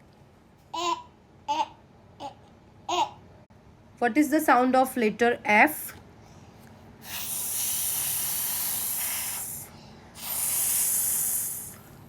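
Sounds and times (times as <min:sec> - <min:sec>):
child making ffff hiss: 0:07.0 - 0:11.8.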